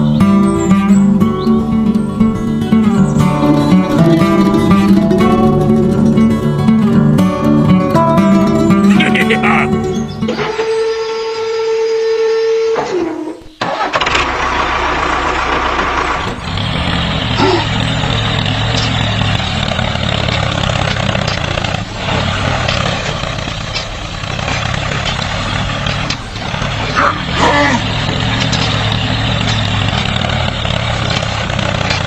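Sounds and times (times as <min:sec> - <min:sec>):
small engine starting and running: 0:00.0 - 0:32.0.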